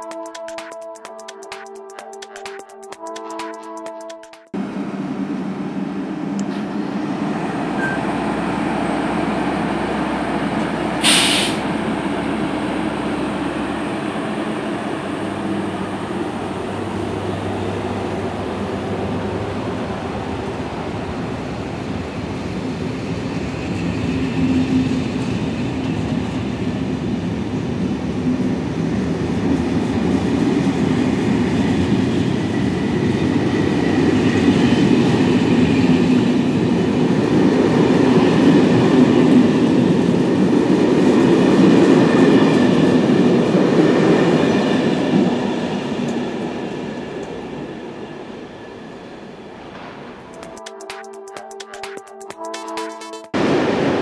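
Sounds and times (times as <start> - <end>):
train wheels on rails: 4.3 - 50.8
brief sharp noise: 11.0 - 11.6.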